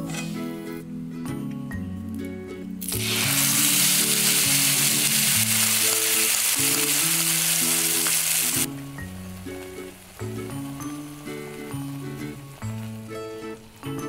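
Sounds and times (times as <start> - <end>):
background music: 0.0 - 14.0
paste sizzling in hot pan: 2.8 - 14.0.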